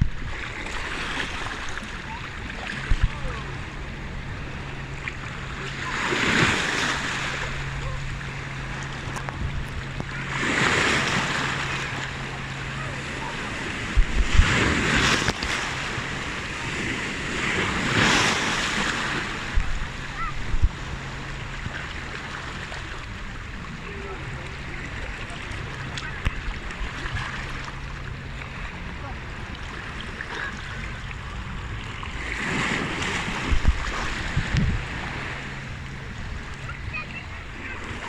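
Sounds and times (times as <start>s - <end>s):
wind knocking on microphone: 0.0s - 0.4s, 13.9s - 15.5s, 19.5s - 21.1s, 33.4s - 34.9s
sea waves breaking: 0.0s - 38.0s
steady low hum: 0.0s - 38.0s.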